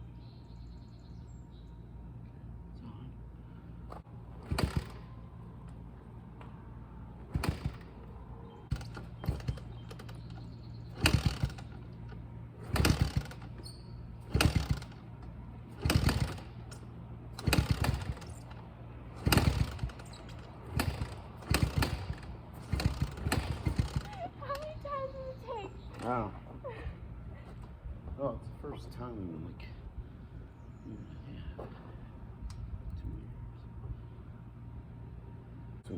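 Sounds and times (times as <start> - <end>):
low engine hum: 0.0 - 35.9
dirt bike being kick-started: 3.9 - 5.2, 7.2 - 8.0, 8.7 - 11.9, 12.6 - 18.6, 19.2 - 24.8, 25.8 - 26.2.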